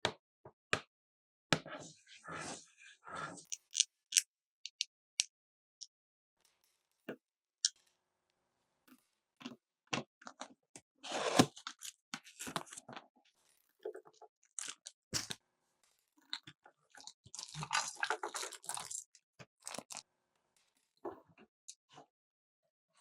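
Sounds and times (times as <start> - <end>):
plastic toy parts clicking: 3.6 - 4.9.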